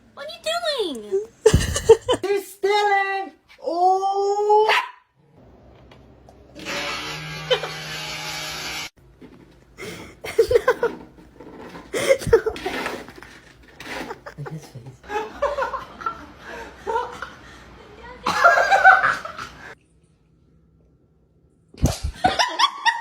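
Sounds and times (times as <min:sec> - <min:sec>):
person laughing: 0:01.4 - 0:02.2, 0:09.8 - 0:11.0, 0:12.0 - 0:12.7, 0:13.9 - 0:15.6.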